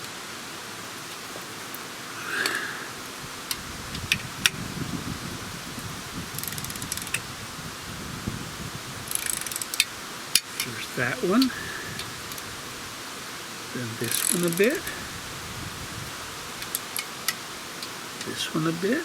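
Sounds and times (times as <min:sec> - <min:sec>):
ratchet wrench clicking: 0:09.1 - 0:09.9, 0:14.1 - 0:14.7
metallic clicks: 0:14.1 - 0:14.7.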